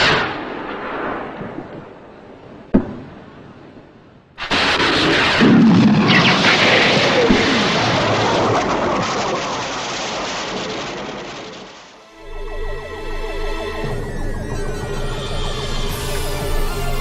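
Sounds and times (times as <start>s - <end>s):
loud rushing blast: 4.4s - 17.0s
falling tones: 12.0s - 17.0s.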